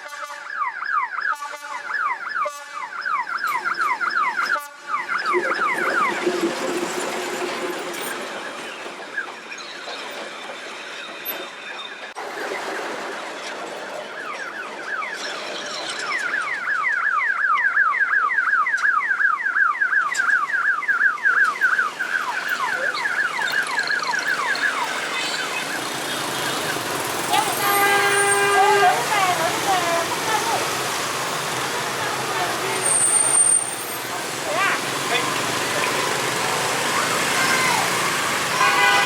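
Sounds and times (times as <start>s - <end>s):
street noise: 0.0s - 39.0s
electronic alarm chirping: 0.4s - 12.2s, 14.2s - 28.0s.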